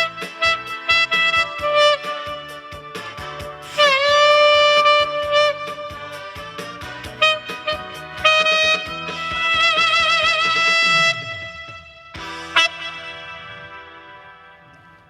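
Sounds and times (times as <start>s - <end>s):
backing track with steady beat: 0.0s - 15.0s
saxophone slow melody: 0.0s - 15.0s.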